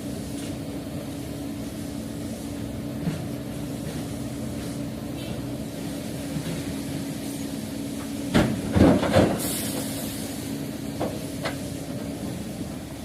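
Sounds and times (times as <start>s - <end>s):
diesel machinery running: 0.0s - 13.0s
air hiss: 9.3s - 12.8s.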